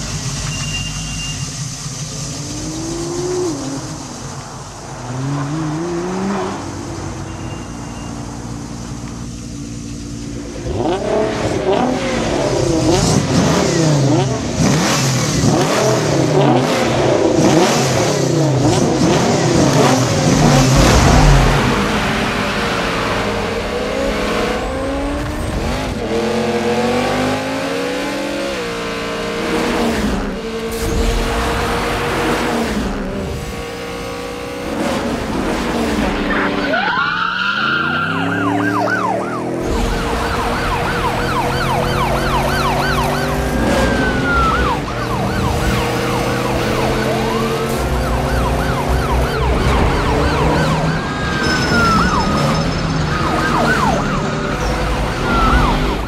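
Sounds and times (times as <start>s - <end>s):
car engines revving: 0.0s - 56.0s
police sirens yelping: 36.2s - 56.0s
siren wail: 36.3s - 56.0s.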